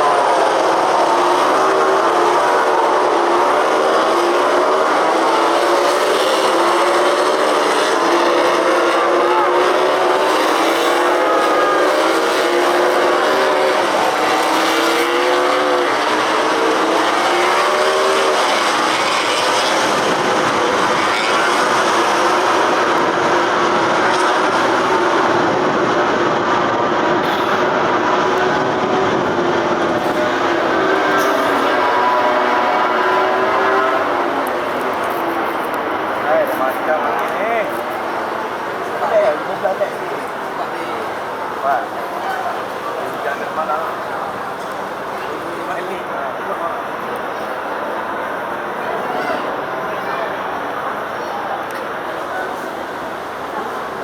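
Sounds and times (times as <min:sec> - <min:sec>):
racing motorcycle engines: 0:00.0 - 0:54.0.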